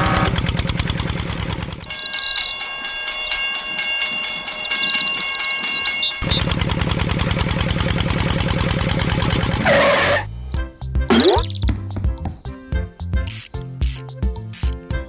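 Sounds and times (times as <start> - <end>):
low rapid pulsing: 0.0 - 3.8, 5.0 - 13.3
fast regular train clatter: 0.0 - 9.7.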